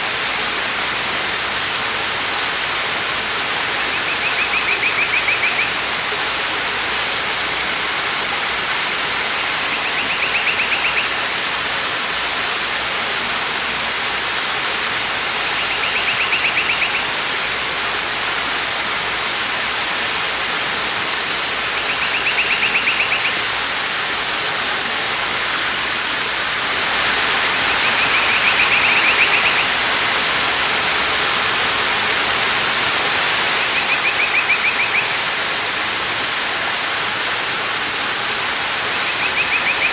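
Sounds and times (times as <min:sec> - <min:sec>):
waterfall rushing: 0:00.0 - 0:39.9
bird high rapid trill: 0:21.8 - 0:23.5.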